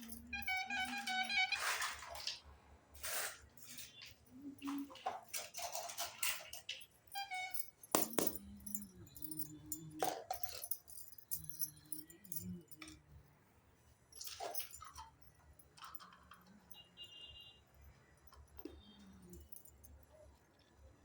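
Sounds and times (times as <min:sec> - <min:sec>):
toy kitchen pieces clinking: 0:00.0 - 0:02.4, 0:03.0 - 0:13.0, 0:14.1 - 0:16.8
ringing clink: 0:07.2 - 0:13.0.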